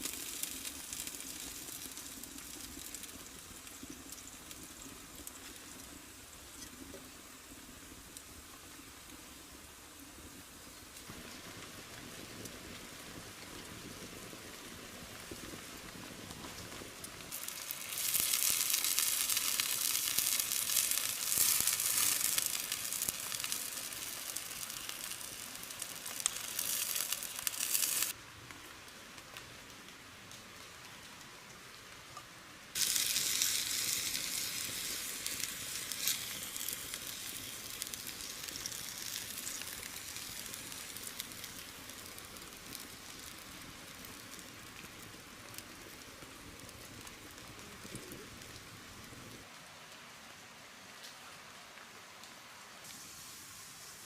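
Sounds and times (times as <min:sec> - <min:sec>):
food sizzling in hot oil: 0:00.0 - 0:08.2, 0:17.2 - 0:28.2, 0:32.8 - 0:44.4
rain pattering: 0:00.0 - 0:54.0.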